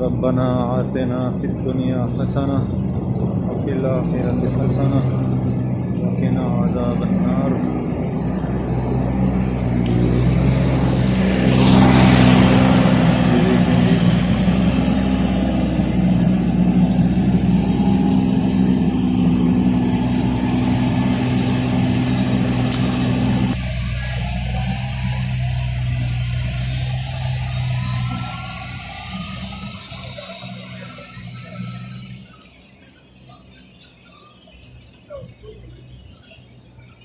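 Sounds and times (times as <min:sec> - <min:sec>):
floor cleaning machine humming: 0:06.8 - 0:32.0.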